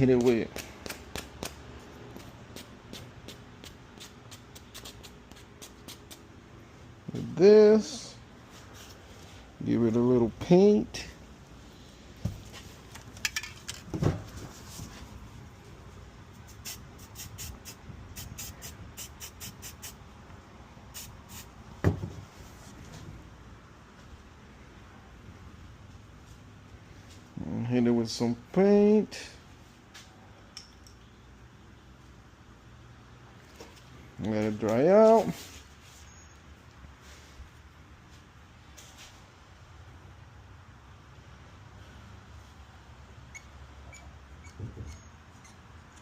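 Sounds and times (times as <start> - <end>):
small parts and tools clicking: 12.9 - 13.9, 30.5 - 31.1.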